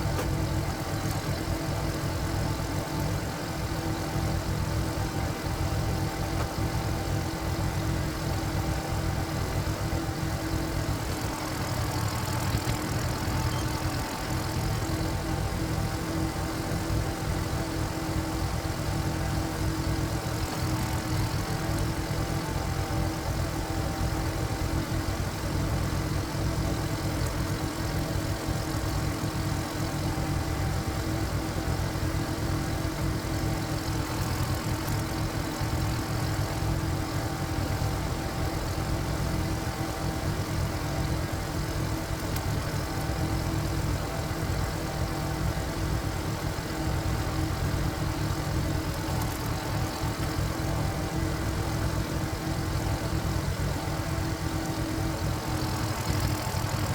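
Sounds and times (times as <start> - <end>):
diesel engine running: 0.0 - 38.8, 47.2 - 56.9.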